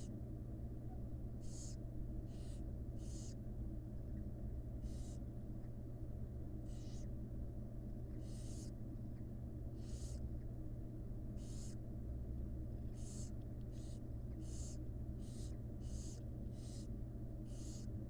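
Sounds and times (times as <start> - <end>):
steady low hum: 0.0 - 18.0
owl chicks hissing begging calls: 1.4 - 3.4, 4.8 - 5.2, 6.6 - 7.1, 8.2 - 8.8, 9.8 - 10.2, 11.4 - 11.8, 12.8 - 17.9.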